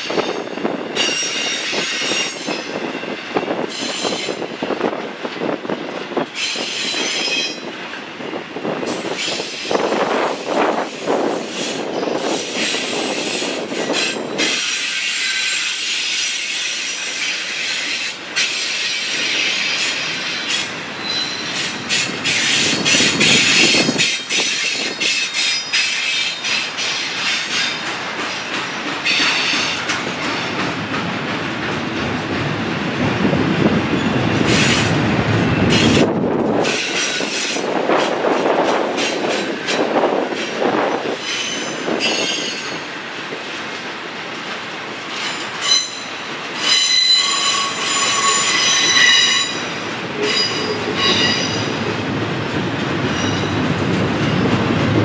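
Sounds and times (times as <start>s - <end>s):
railroad cars rumbling past: 0.0s - 55.0s
wheels squealing: 14.0s - 24.5s, 45.2s - 51.8s.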